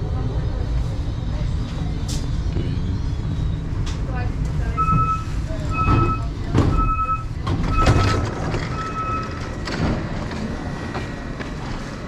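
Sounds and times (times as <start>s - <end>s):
low rumble of station noise: 0.0s - 12.0s
electronic warning beeper: 4.8s - 9.4s.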